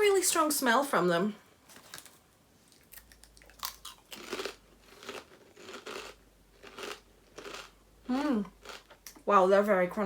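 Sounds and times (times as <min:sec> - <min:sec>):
potato chips crunching: 0:01.8 - 0:09.2.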